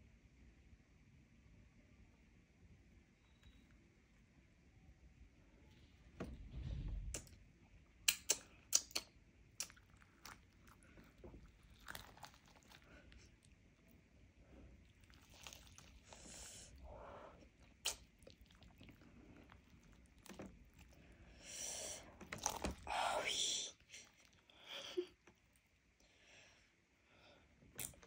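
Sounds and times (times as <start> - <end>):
person chewing and biting: 8.1 - 13.6, 14.8 - 16.8, 17.6 - 21.1, 22.2 - 22.9.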